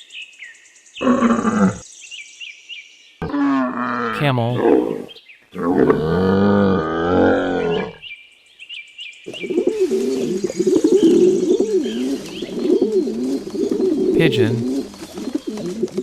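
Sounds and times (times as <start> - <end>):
pigeon cooing: 9.3 - 16.0
camel low call: 9.7 - 16.0.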